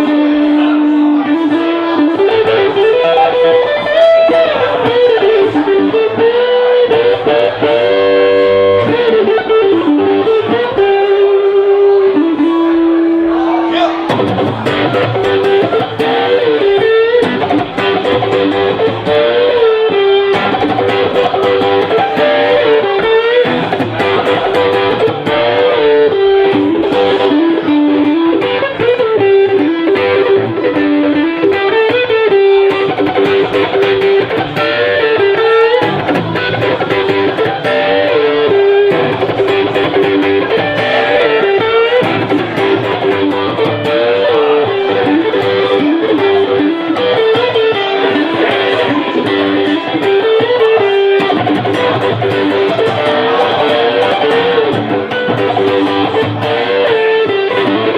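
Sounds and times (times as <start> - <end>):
electric guitar lead with slides: 0.0 - 57.9
band accompaniment: 13.8 - 57.9.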